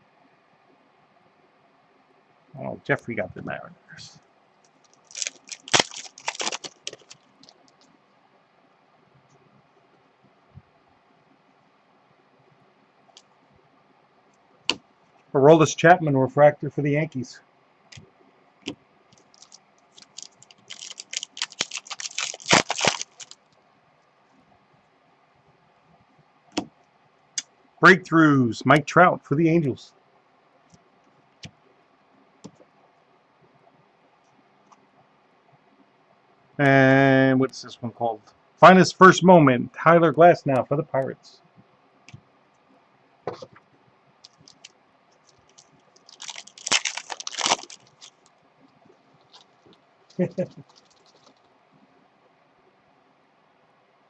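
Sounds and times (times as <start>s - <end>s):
trading cards clicking and rustling: 4.7s - 7.6s, 19.2s - 23.4s
plastic packaging crinkling: 4.7s - 7.8s, 19.2s - 23.4s, 44.2s - 48.3s, 49.1s - 51.5s.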